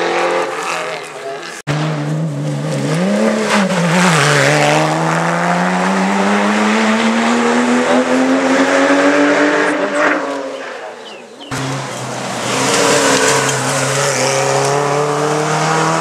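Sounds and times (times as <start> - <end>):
car engine accelerating hard: 1.7 - 10.5, 11.5 - 16.0.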